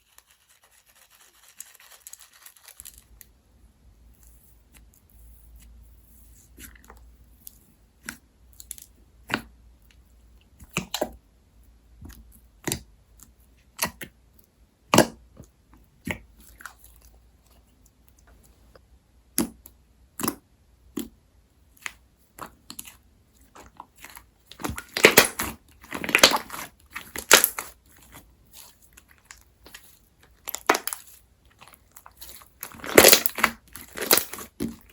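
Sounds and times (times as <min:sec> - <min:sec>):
slime popping and crackling: 0:23.5 - 0:34.9.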